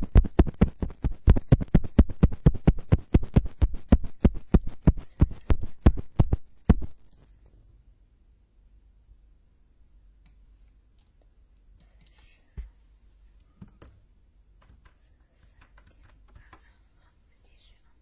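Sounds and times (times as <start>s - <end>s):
soft brushing on microphone: 0.0s - 7.3s
soft clicks: 10.2s - 10.4s.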